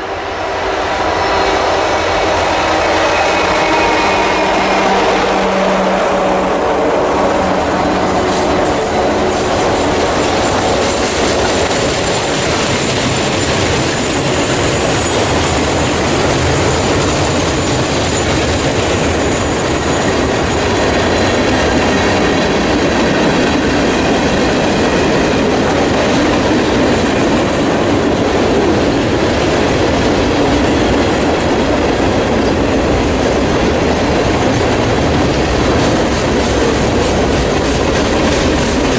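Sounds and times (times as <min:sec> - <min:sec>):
train wheels clacking: 0:00.0 - 0:38.9
high wheel squeal: 0:00.9 - 0:06.1, 0:08.1 - 0:21.9.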